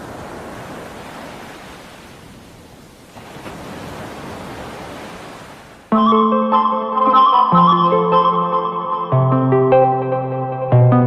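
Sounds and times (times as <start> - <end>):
sea waves rushing: 0.0 - 8.8.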